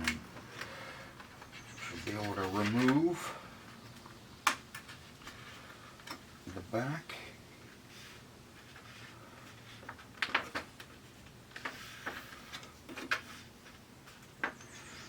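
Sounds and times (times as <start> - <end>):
plastic sheet clicks and crinkles: 9.6 - 14.7.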